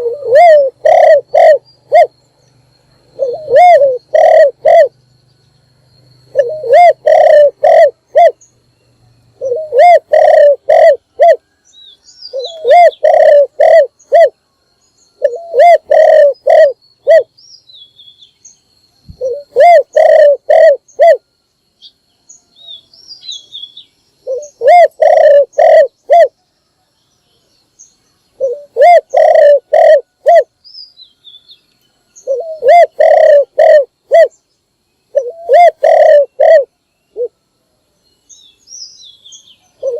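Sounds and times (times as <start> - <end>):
dove cooing: 0.0 - 2.2, 3.1 - 5.0, 6.3 - 8.4, 9.4 - 11.5, 12.3 - 14.4, 15.2 - 17.3, 19.1 - 21.2, 24.2 - 26.4, 28.4 - 30.5, 32.2 - 34.4, 35.1 - 37.4
small birds chirping: 0.0 - 37.4, 38.0 - 39.9.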